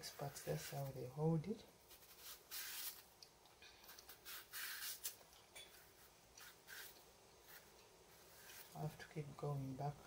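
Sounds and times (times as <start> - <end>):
knife scraping banana skin: 1.9 - 3.1, 3.8 - 8.8.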